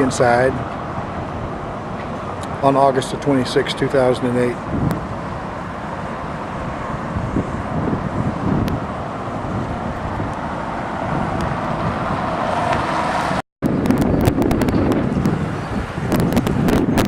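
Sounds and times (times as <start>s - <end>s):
street traffic noise: 0.0s - 17.0s
wind on microphone: 4.6s - 17.0s.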